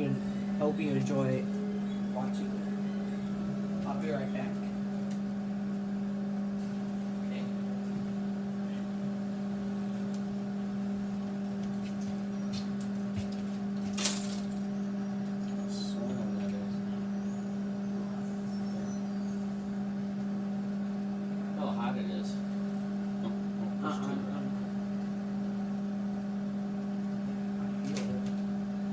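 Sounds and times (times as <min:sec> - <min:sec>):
microwave oven humming: 0:00.0 - 0:28.9.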